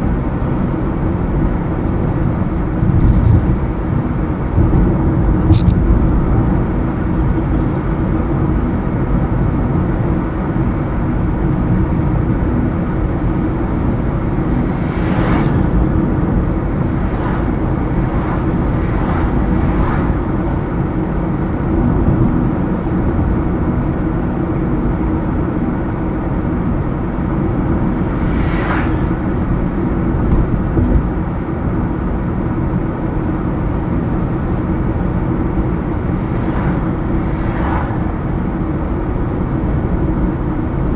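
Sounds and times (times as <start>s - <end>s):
car engine and tyre noise: 0.0s - 40.9s
passing vehicle whooshes: 12.2s - 23.6s, 26.2s - 32.0s, 34.2s - 40.9s.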